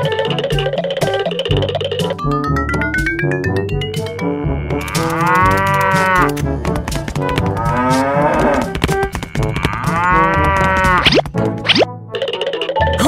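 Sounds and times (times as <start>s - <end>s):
background music with steady beat: 0.0s - 12.0s
cow mooing: 4.4s - 6.3s, 7.6s - 11.0s.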